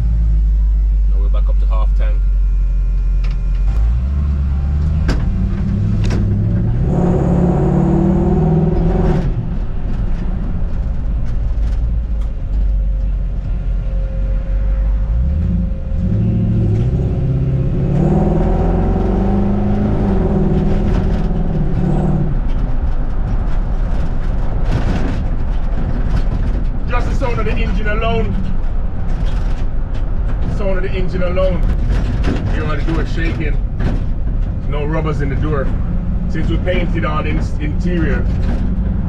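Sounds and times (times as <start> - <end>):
pickup truck engine revving: 3.5 - 11.0, 14.8 - 33.8.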